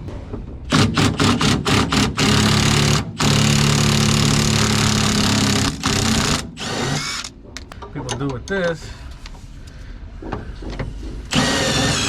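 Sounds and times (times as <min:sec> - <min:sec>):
impact wrench running: 0:00.7 - 0:07.3, 0:11.3 - 0:12.0.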